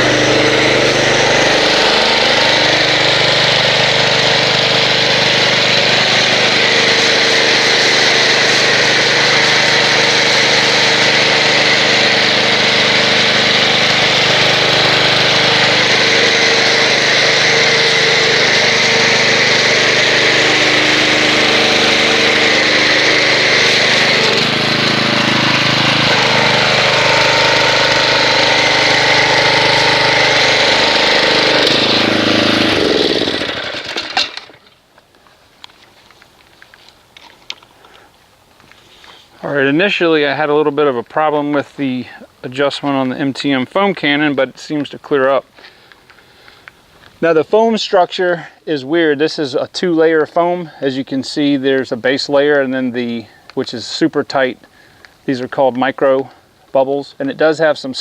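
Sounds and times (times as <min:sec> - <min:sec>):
pressure washer running: 0:00.0 - 0:34.8.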